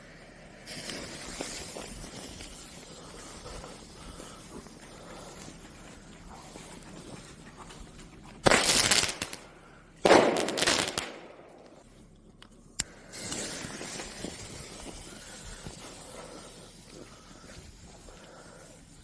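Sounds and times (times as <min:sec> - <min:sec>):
firework blasts: 0:00.1 - 0:03.9, 0:08.4 - 0:11.8, 0:12.8 - 0:16.6
firework sharp crack: 0:08.4 - 0:11.8.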